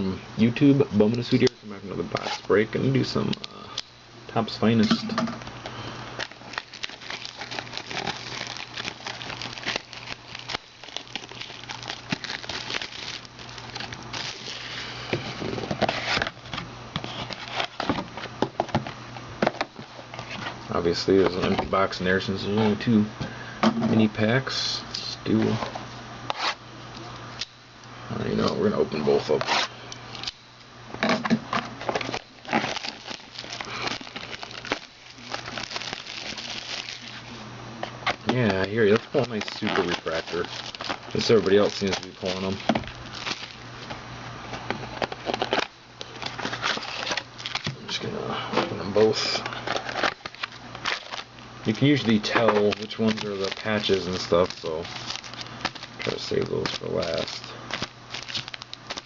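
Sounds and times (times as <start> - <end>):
wrapper crinkling: 6.2 - 14.8, 31.8 - 44.0, 44.6 - 47.7, 48.6 - 59.0.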